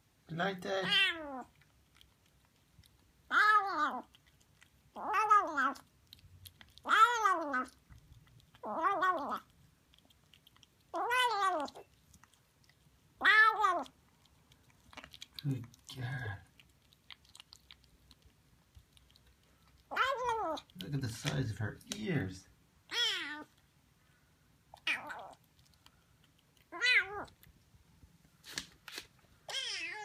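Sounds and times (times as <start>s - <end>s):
kitten meowing: 0.8s - 1.5s, 3.3s - 4.1s, 5.0s - 5.8s, 6.8s - 7.8s, 8.6s - 9.5s, 10.9s - 11.8s, 13.2s - 13.9s, 19.9s - 20.7s, 22.9s - 23.5s, 24.8s - 25.4s, 26.7s - 27.4s, 29.5s - 30.0s.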